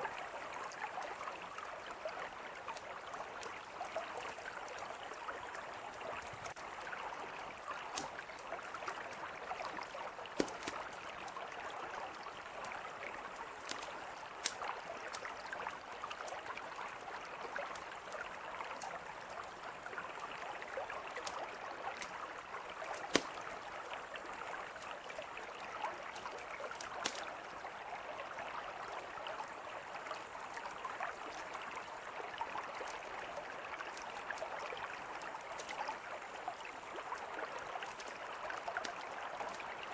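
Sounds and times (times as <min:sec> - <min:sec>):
river flowing: 0:00.0 - 0:39.9
campfire crackling and popping: 0:05.5 - 0:06.7, 0:07.4 - 0:16.5, 0:22.8 - 0:23.8, 0:26.1 - 0:27.3.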